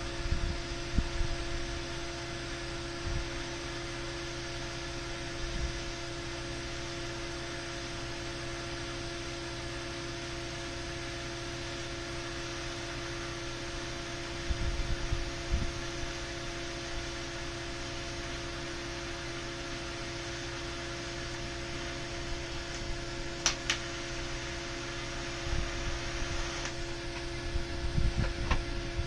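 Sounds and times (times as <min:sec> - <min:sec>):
electrical hum: 0:00.0 - 0:29.0.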